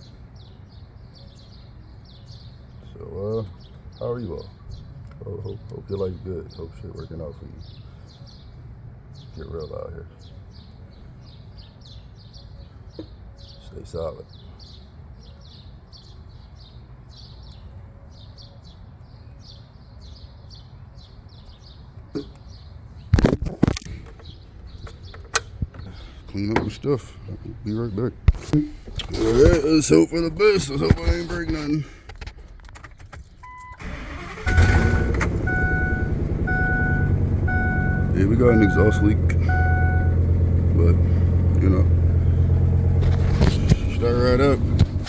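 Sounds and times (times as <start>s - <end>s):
engine cranking and running: 32.6s - 45.0s
warning chime beeping: 33.4s - 41.1s
low steady rumble: 33.4s - 45.0s
small bird chirping: 34.6s - 41.0s.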